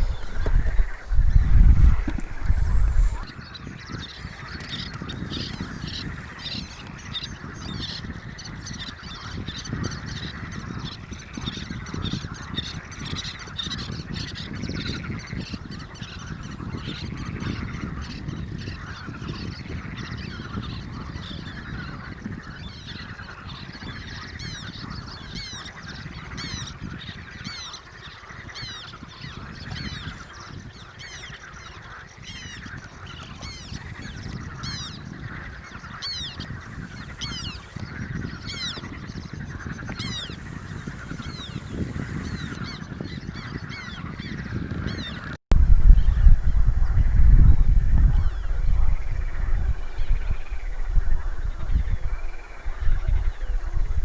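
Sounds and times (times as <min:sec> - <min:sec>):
birds chirping: 0:00.0 - 0:03.4, 0:04.5 - 0:07.9, 0:32.4 - 0:42.8, 0:45.8 - 0:54.0.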